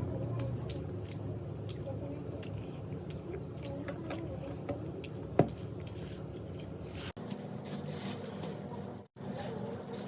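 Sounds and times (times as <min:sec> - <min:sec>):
person chewing: 0:00.3 - 0:07.2.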